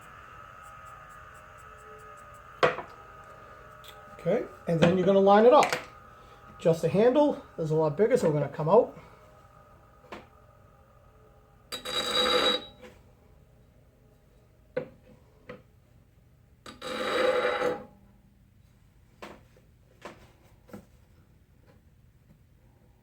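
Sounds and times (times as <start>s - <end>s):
grinding wheel hiss: 0.0s - 12.7s.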